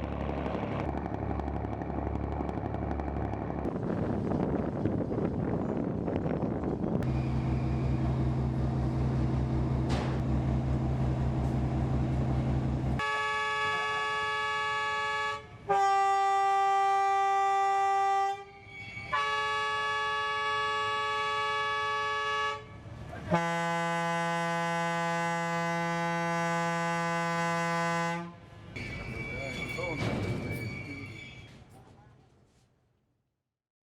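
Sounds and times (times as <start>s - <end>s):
boat engine humming: 0.0s - 17.9s
horn long blasts: 13.0s - 30.0s.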